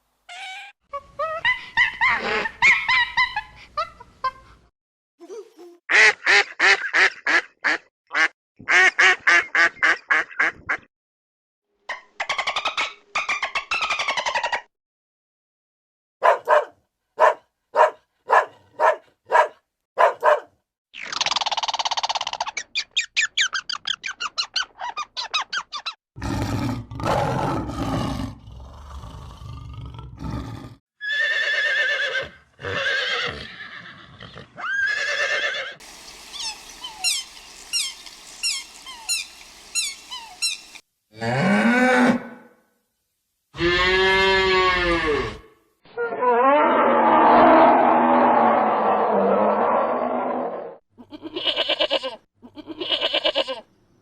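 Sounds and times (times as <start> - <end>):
farm animal calls: 31.0 - 41.4
quick high chirps: 36.1 - 40.8.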